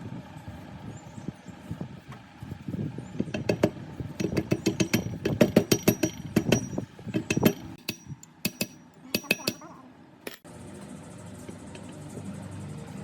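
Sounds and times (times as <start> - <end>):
metallic knocking and clinking: 3.3 - 10.5.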